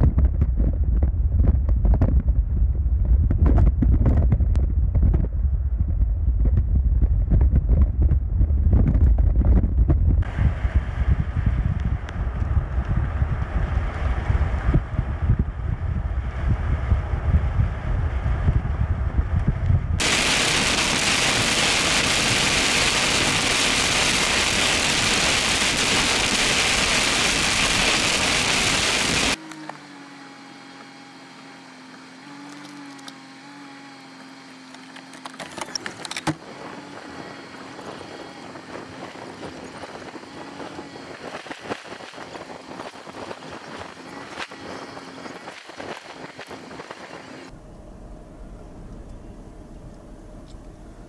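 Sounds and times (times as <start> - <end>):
wind buffeting car: 0.0 - 29.4, 33.8 - 51.0
road rumble: 0.0 - 51.0
steady low hum: 0.0 - 51.0
heavy rain on car: 20.0 - 29.4.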